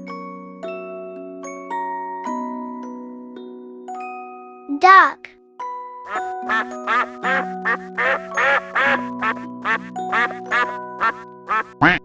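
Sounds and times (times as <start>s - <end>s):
light children's music: 0.0s - 12.0s
duck quacking: 6.5s - 12.0s.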